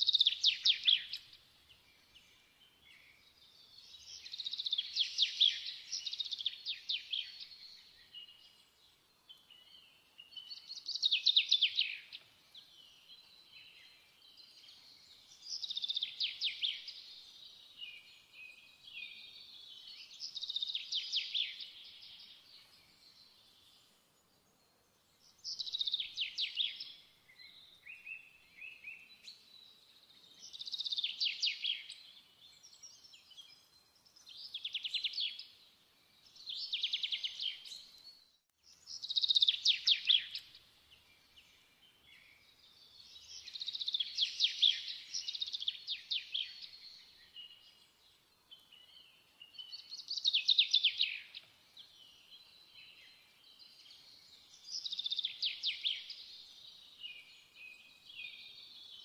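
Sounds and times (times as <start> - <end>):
bird trilling song: 0.0 - 23.9, 25.1 - 59.0
soft bird twittering: 0.0 - 59.0.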